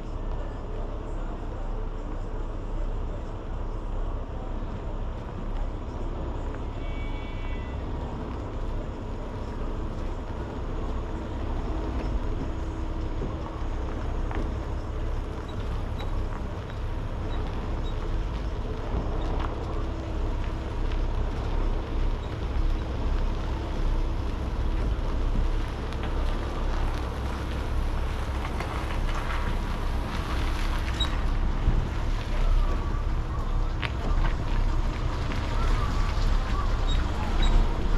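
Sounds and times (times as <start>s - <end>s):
truck engine and road rumble: 0.0s - 37.9s.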